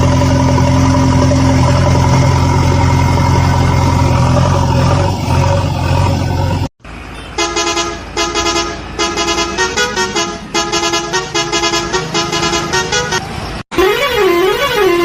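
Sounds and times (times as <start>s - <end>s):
engine running: 0.0s - 7.2s
vehicle horn honking a tune: 7.1s - 15.0s.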